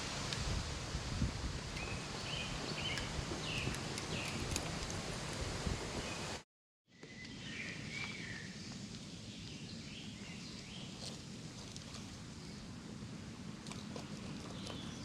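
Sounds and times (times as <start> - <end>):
bird chirping: 1.8 - 4.4.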